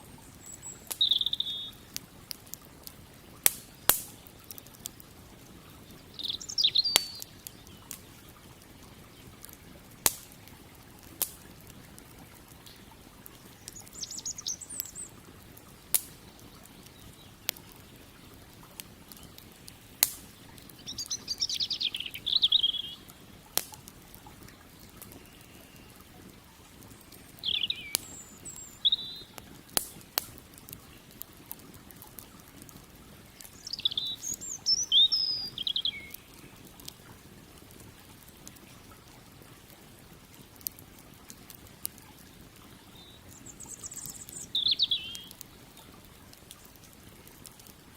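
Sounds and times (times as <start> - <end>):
songbird twittering: 0.0 - 1.8, 6.0 - 8.0, 13.5 - 15.2, 20.2 - 23.1, 27.4 - 29.4, 33.6 - 36.4, 42.9 - 45.4
wood fire crackling: 0.0 - 47.9.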